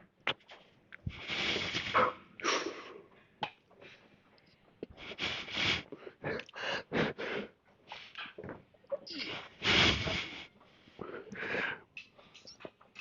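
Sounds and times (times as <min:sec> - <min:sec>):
man breathing hard: 0:05.0 - 0:07.6, 0:09.6 - 0:11.9.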